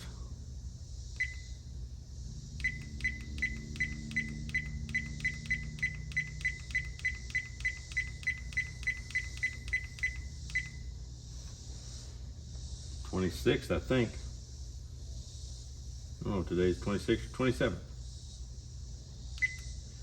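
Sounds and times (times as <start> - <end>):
short high button beeps: 2.6 - 10.8.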